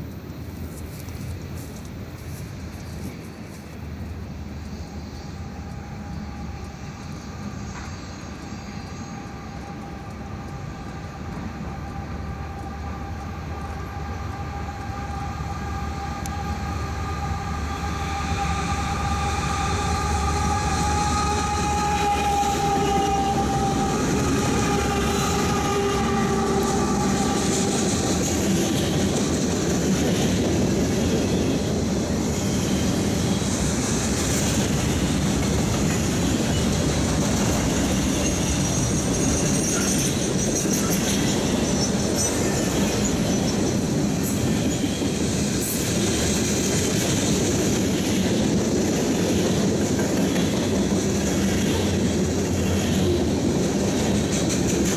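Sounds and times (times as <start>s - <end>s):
freight train running noise: 0.0s - 54.9s
locomotive horn chord: 15.7s - 28.0s.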